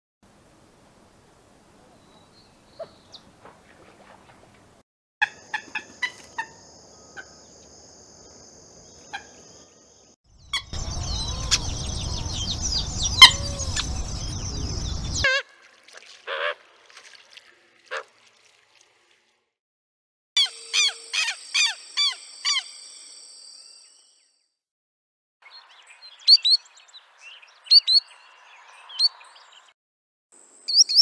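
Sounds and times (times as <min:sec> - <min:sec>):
low rumbling background: 0:10.4 - 0:15.2
gallinule calls: 0:10.5 - 0:14.4.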